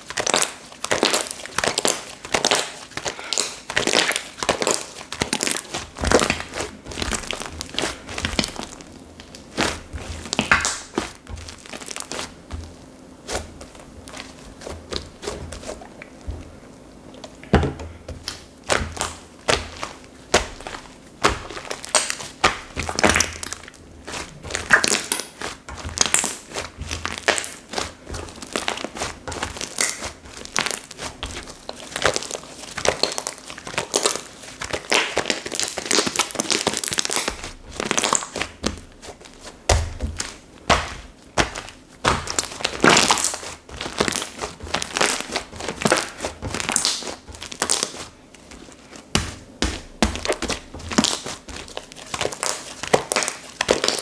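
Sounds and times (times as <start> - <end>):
slime squelching and crackling: 0.0 - 54.0.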